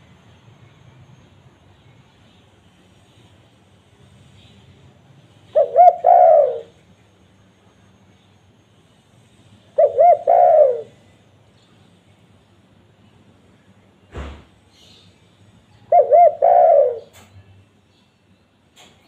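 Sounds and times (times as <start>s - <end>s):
dove cooing: 5.4s - 6.8s, 9.7s - 11.2s, 15.9s - 17.3s.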